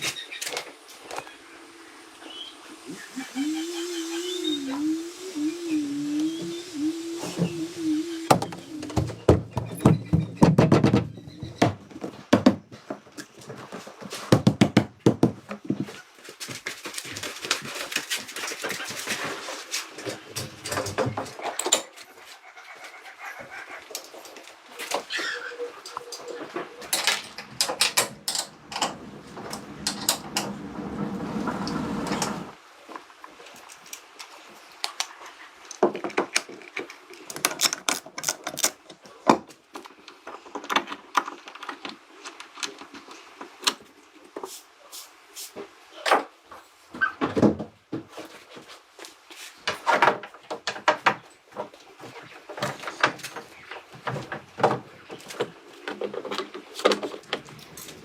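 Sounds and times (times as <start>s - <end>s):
objects being handled clattering: 23.9s - 31.0s.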